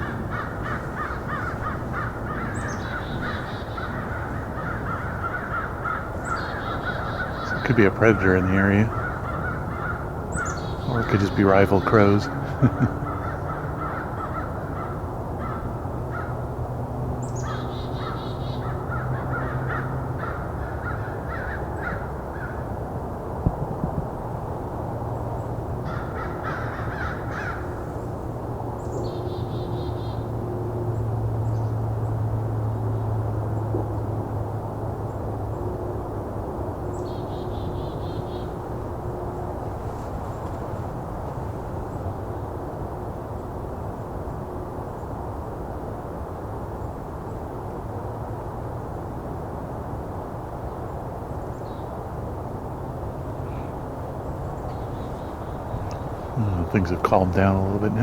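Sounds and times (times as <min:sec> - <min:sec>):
short higher bird calls: 0:00.0 - 0:14.5
crows cawing: 0:00.0 - 0:16.6, 0:17.3 - 0:22.8, 0:25.8 - 0:28.0, 0:53.2 - 0:58.0
steady low hum: 0:00.0 - 0:58.0.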